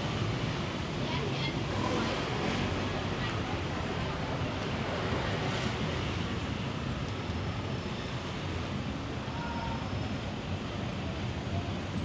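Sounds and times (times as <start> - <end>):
traffic: 0.0 - 12.0.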